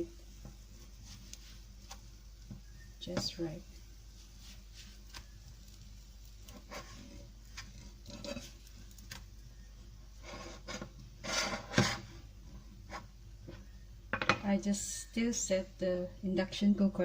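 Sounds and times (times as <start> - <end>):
spatula scraping a frying pan: 4.2 - 9.0, 10.2 - 12.2, 12.8 - 13.1.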